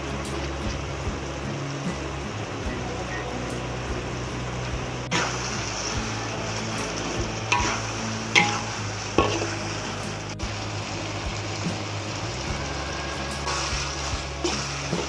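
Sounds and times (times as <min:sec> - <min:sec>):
onions and tomatoes sizzling in oil: 0:00.0 - 0:15.0
spatula scraping a pan: 0:06.5 - 0:10.0.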